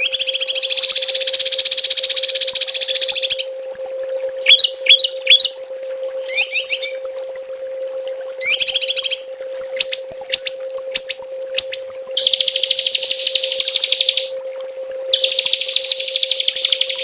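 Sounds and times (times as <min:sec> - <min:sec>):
songbird sharp call bursts: 0:04.4 - 0:05.5, 0:06.3 - 0:07.0, 0:08.4 - 0:14.3.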